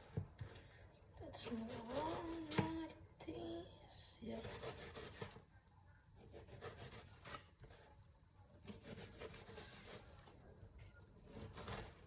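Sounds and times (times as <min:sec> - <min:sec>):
knife cutting onion on board: 0:08.6 - 0:10.1, 0:11.2 - 0:12.0.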